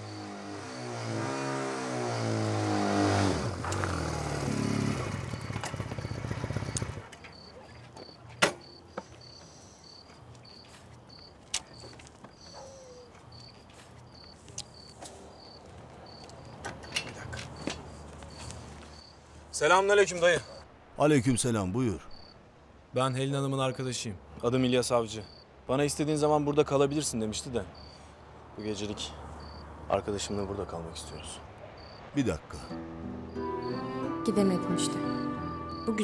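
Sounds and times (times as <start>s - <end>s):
crickets chirping: 0.0s - 36.0s
music: 32.7s - 36.0s.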